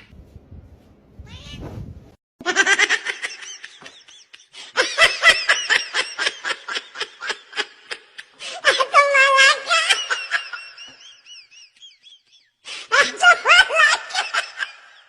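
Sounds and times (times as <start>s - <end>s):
cat crying: 1.2s - 1.6s.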